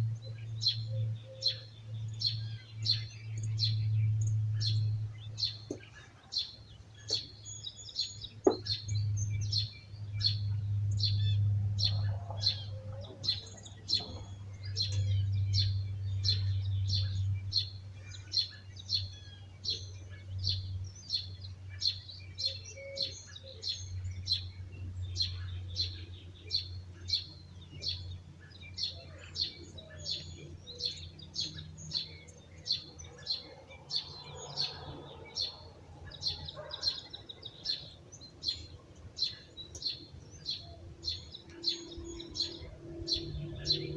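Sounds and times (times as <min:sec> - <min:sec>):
bird chirping: 0:00.0 - 0:43.9
low steady hum: 0:00.0 - 0:43.9
other birds calling faintly: 0:00.0 - 0:43.9.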